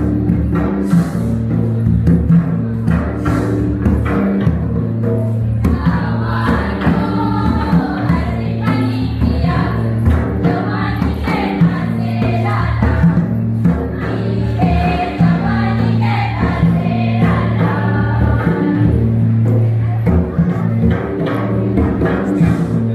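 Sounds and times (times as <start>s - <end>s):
percussion beat: 0.0s - 22.9s
group of voices singing: 5.5s - 22.9s.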